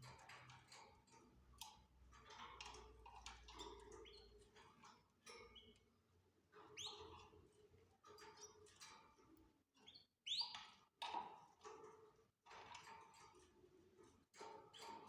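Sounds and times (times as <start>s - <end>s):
canaries chirping: 3.2s - 5.8s, 6.6s - 7.4s, 9.8s - 10.8s.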